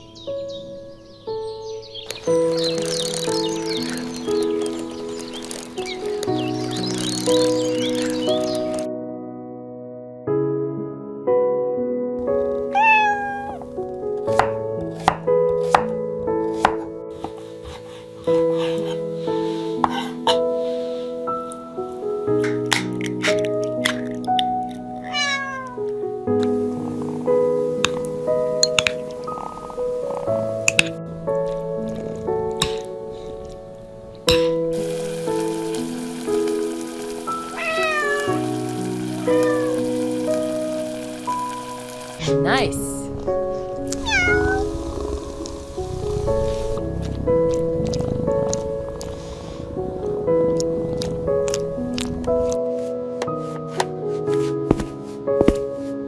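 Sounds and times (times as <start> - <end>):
rain hiss: 0.0 - 8.9, 12.8 - 13.7, 34.7 - 47.2
gentle background music: 0.0 - 25.2, 25.8 - 56.0
cat meowing: 12.7 - 13.7, 25.0 - 25.8, 37.6 - 40.3, 43.9 - 44.7.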